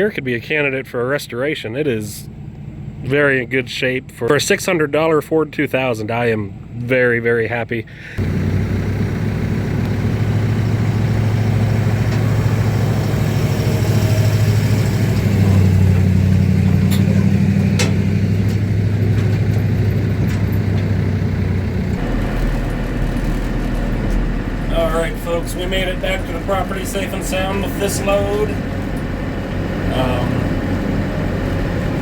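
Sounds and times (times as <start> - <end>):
diesel pickup engine running: 7.9 - 32.0.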